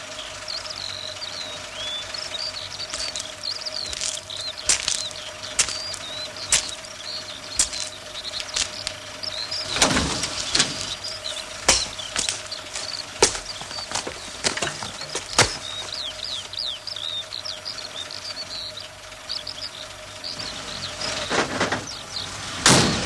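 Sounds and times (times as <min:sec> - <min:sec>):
faint steady hum: 0:00.0 - 0:23.0
small birds chirping: 0:00.0 - 0:23.0
sharp knocks: 0:02.3 - 0:16.2.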